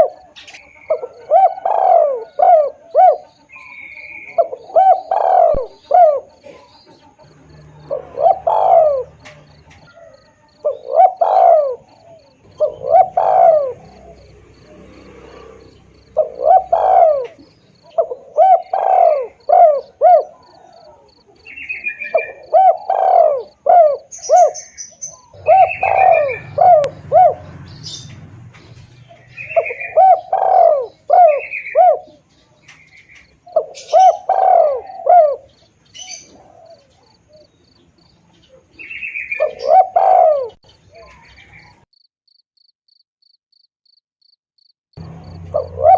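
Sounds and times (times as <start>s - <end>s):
high-pitched insect pulsing: 0.0s - 28.4s, 41.6s - 45.9s
dove cooing: 0.0s - 41.8s, 45.0s - 45.9s
small birds chirping: 0.0s - 45.9s.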